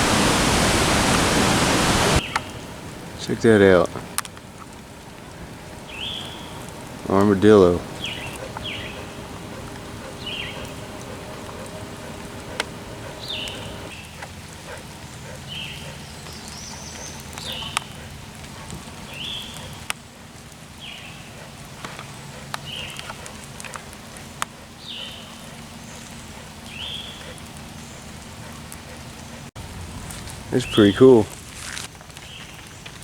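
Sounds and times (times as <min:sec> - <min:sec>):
low hum: 0:04.6 - 0:13.9
bird chirping: 0:05.9 - 0:06.6, 0:07.7 - 0:14.2.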